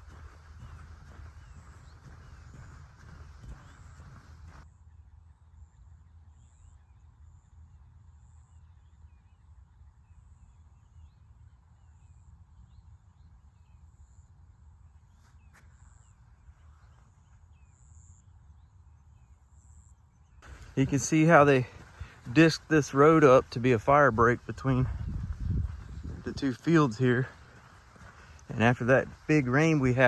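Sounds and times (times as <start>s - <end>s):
birds chirping: 0.0s - 4.6s, 15.0s - 30.0s.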